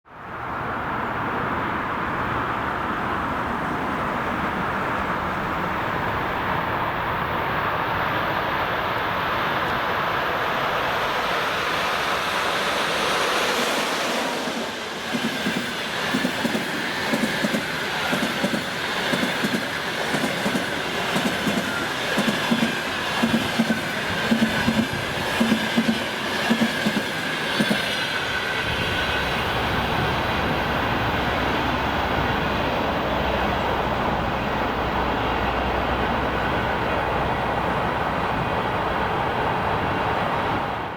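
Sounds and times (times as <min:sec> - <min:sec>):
train rushing past: 0:00.2 - 0:40.9
high wheel squeal: 0:19.7 - 0:23.2.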